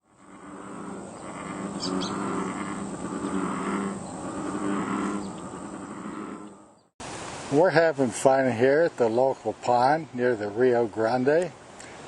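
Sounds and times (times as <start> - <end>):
bird chirping: 0.0 - 6.9
frogs croaking: 0.0 - 6.9.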